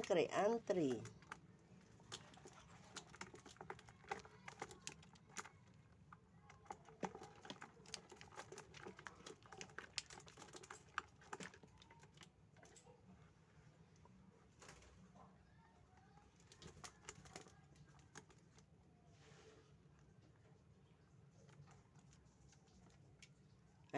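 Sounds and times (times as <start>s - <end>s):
beak and feet clicks and taps: 0.0s - 12.9s, 16.4s - 18.7s, 21.4s - 23.6s.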